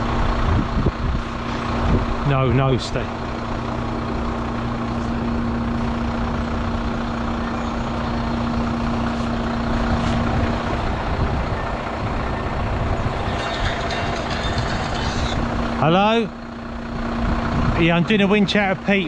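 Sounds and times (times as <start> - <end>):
diesel truck engine running: 0.0 - 19.0
winch hum: 0.0 - 19.0.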